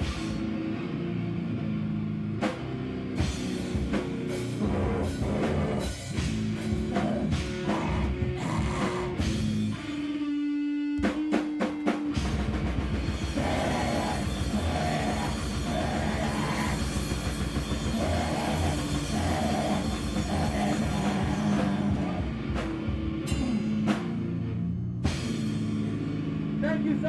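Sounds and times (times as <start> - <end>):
band playing heavy noise rock: 0.0 - 27.0
drum hits: 11.0 - 24.4.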